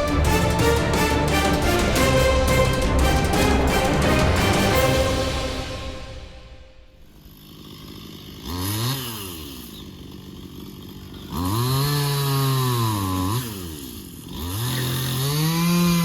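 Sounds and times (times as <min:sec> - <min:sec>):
chainsaw revving: 0:07.0 - 0:16.0.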